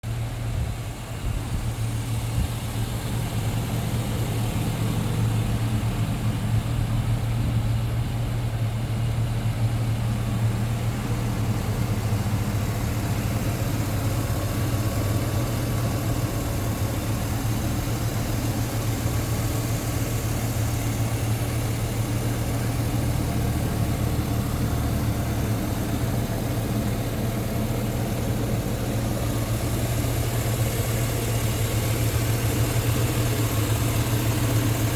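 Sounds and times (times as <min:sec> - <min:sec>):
truck engine idling: 0:00.0 - 0:34.9.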